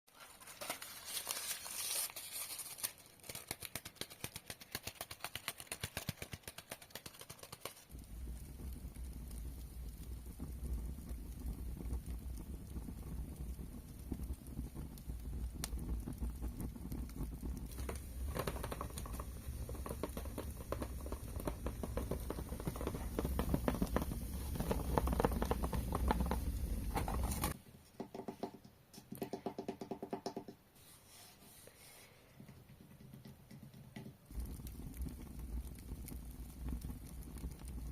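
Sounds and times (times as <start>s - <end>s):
close crackling and pattering: 0.1s - 30.2s, 32.4s - 37.9s
rapid tapping on hard object: 3.7s - 7.9s, 17.2s - 30.6s.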